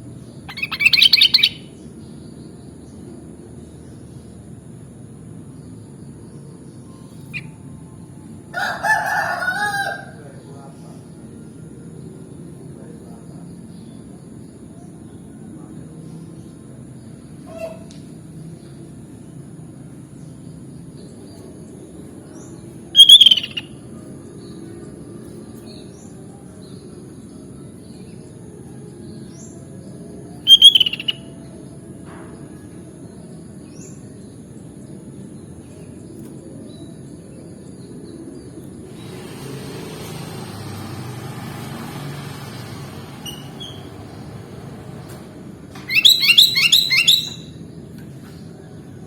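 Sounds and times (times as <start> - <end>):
bird calls: 0.4 - 1.8, 22.9 - 23.7, 30.5 - 31.3, 45.7 - 47.6
faint bird chirps: 0.5 - 1.7, 22.9 - 23.8, 30.5 - 31.4, 45.8 - 47.6
low background noise: 43.3 - 49.0.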